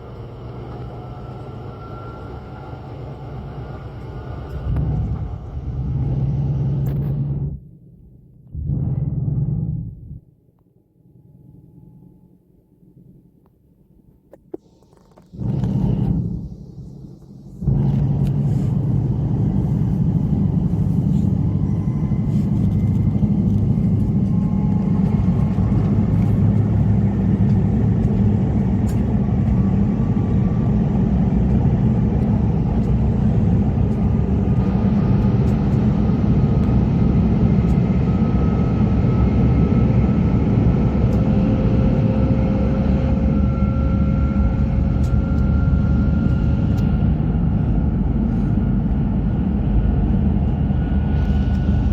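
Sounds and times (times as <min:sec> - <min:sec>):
train rumble with whine: 0:00.0 - 0:51.9.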